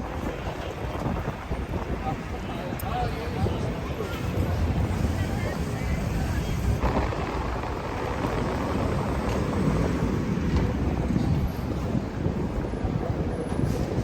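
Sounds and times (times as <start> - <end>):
busy train station rumble: 0.0 - 14.0.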